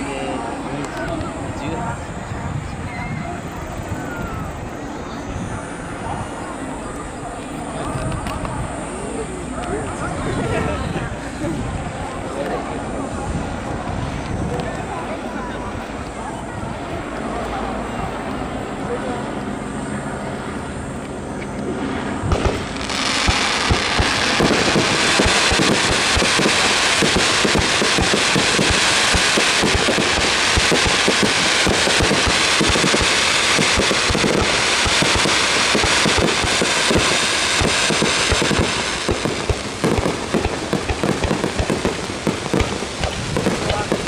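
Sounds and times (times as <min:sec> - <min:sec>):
fireworks pops and bangs: 0:07.8 - 0:08.6, 0:22.3 - 0:44.0.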